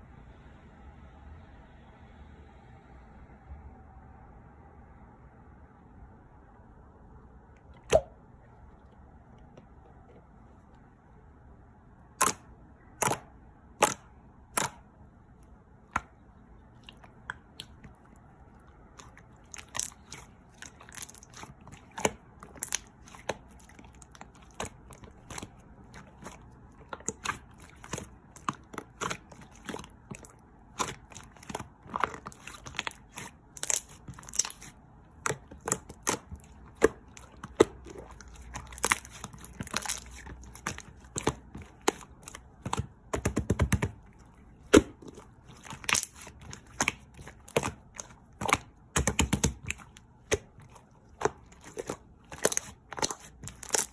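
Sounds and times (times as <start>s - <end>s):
slime clicking and popping: 7.9s - 8.1s, 12.2s - 12.4s, 13.0s - 14.8s, 19.0s - 44.0s, 44.6s - 50.5s, 51.1s - 53.9s.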